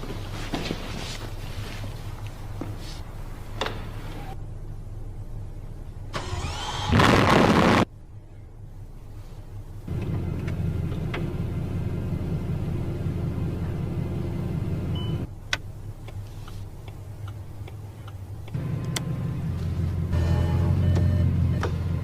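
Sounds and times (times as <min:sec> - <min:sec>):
car engine idling: 0:08.6 - 0:22.0.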